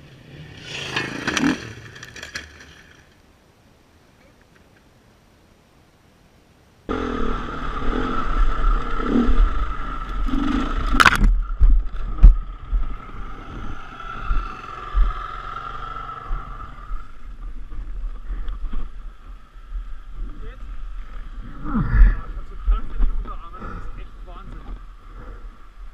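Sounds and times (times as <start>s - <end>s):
dirt bike engine running: 6.9s - 20.2s.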